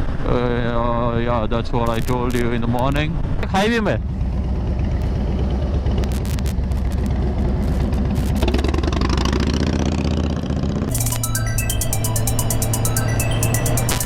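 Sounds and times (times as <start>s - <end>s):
motorcycle engine running: 4.0s - 14.0s
electronic music with steady beat: 10.9s - 14.0s.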